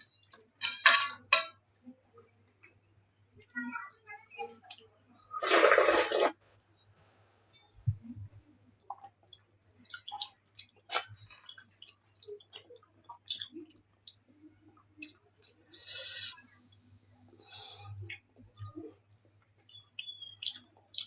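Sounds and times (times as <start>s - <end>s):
chewing and mouth sounds: 8.8s - 15.7s, 17.9s - 21.0s.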